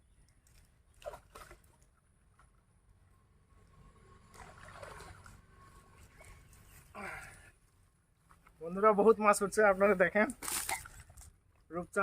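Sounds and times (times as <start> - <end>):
pond water splashing: 0.1 - 7.6, 10.3 - 11.7.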